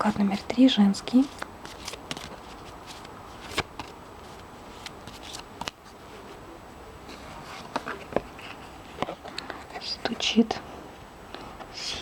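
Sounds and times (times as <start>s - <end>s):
faint room hiss: 0.0s - 12.0s
cards tapping and slapping: 1.2s - 5.8s.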